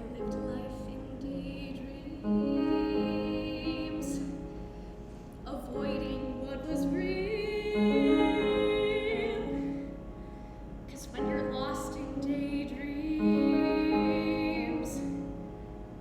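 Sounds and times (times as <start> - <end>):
slow live piano music: 0.0 - 16.0.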